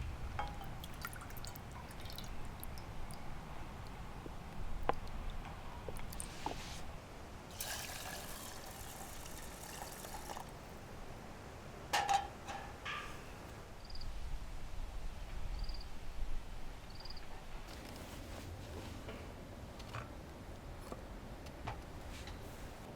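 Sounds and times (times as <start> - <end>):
water pouring and trickling: 0.4 - 3.9, 4.9 - 6.4, 7.5 - 10.6.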